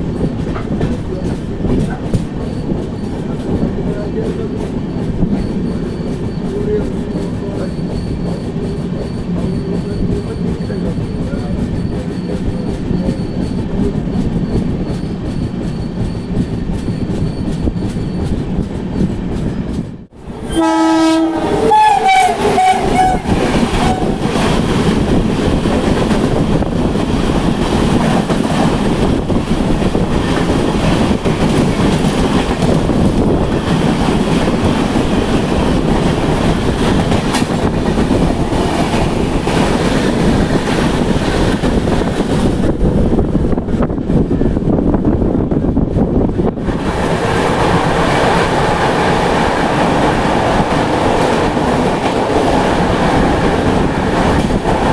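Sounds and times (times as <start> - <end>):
train rumbling on tracks: 0.0 - 54.9
train horn: 20.5 - 24.4.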